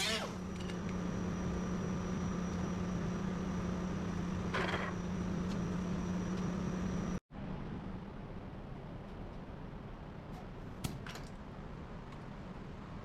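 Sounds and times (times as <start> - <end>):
machine hum with high whine: 0.0 - 9.6.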